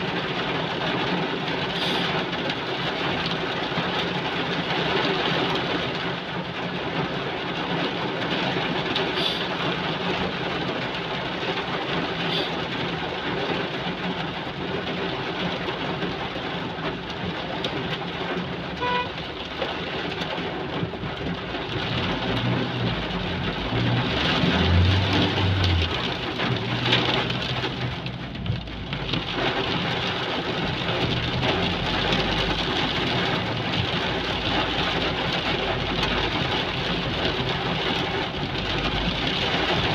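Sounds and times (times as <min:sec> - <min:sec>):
heavy rain pouring: 0:00.0 - 0:39.9
vehicle engine passing: 0:21.8 - 0:28.0.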